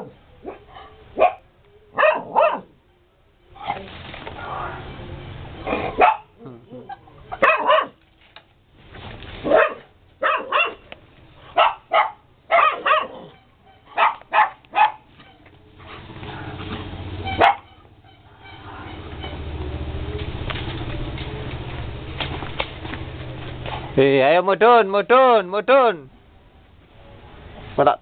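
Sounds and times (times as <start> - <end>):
dog barking: 0.0 - 2.8, 5.7 - 6.4, 7.3 - 8.0, 9.4 - 10.8, 11.5 - 15.1, 17.4 - 17.7.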